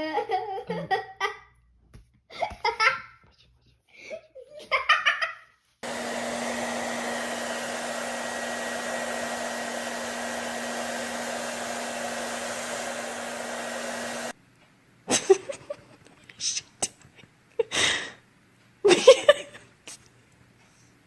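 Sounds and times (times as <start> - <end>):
small motor blowing air: 5.8 - 14.3.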